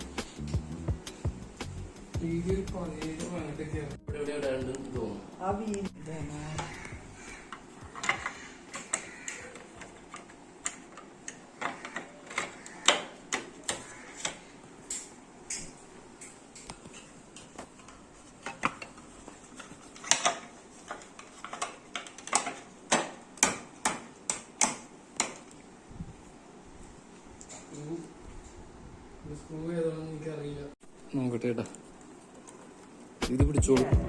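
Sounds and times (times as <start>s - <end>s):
clicks and knocks of hand tools: 6.6s - 25.6s.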